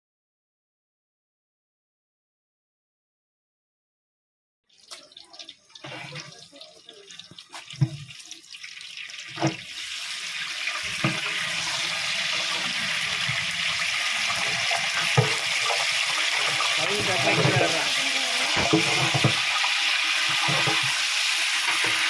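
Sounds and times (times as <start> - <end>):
pot sizzling: 4.7 - 22.0.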